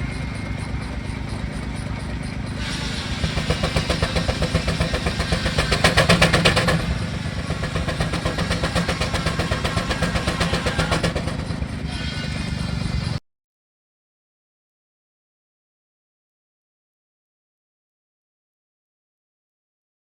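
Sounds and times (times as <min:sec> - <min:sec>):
engine running: 0:00.0 - 0:13.2.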